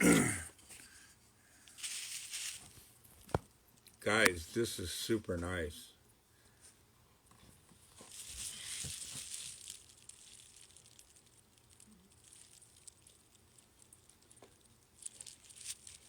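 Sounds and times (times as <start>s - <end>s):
packaging rustling and crinkling: 1.6s - 3.4s, 7.8s - 16.0s.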